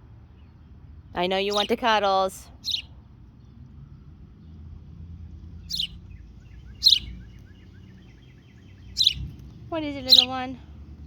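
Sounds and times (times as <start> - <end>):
bird chirping: 1.2 - 2.0, 2.6 - 2.9, 5.6 - 10.5.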